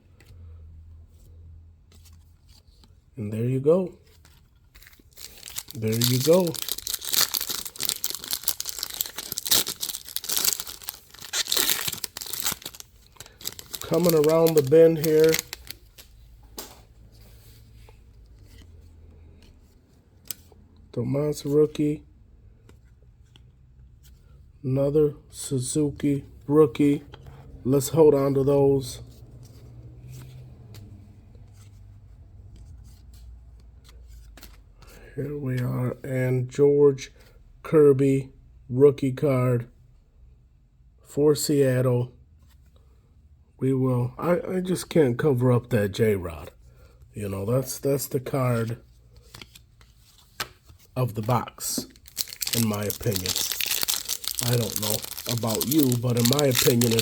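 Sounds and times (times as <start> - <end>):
cards rubbing and clicking: 4.3 - 16.1, 49.2 - 57.0
foil wrapper crinkling and tearing: 5.0 - 16.1, 51.2 - 57.0.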